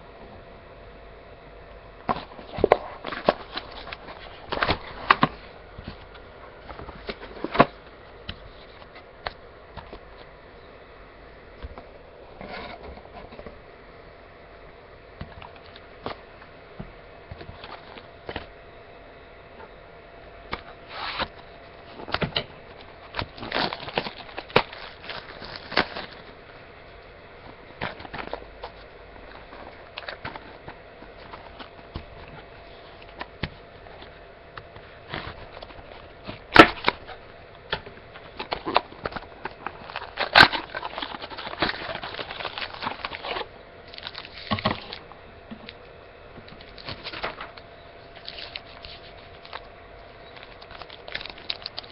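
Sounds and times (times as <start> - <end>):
cardboard and wrappers rustling: 2.0 - 10.3, 17.4 - 18.5, 20.6 - 45.8, 46.4 - 51.9
packaging crinkling: 2.1 - 10.3, 20.6 - 26.6, 27.4 - 45.9, 46.5 - 51.9.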